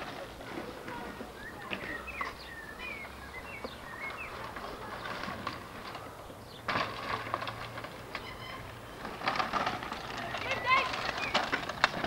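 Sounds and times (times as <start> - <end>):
small bird chirping: 1.4 - 5.2.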